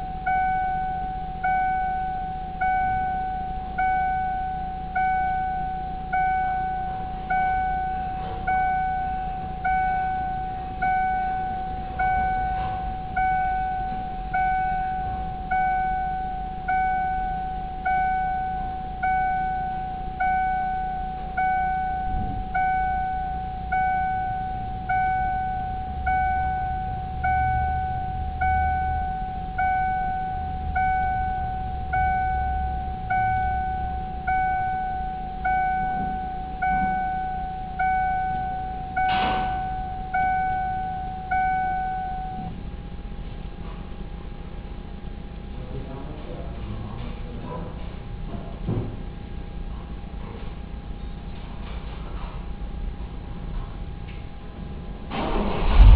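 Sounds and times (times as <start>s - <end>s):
dashboard warning chime: 0.0s - 43.1s
faint low rumble: 0.0s - 55.9s.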